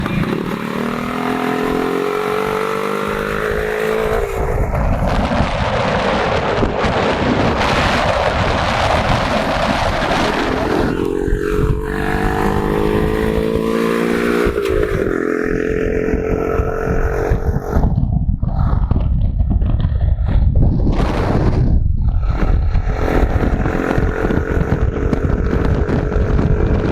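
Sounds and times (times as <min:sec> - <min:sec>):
loud rushing noise: 0:00.0 - 0:16.2
motorcycle engine accelerating: 0:00.0 - 0:26.9.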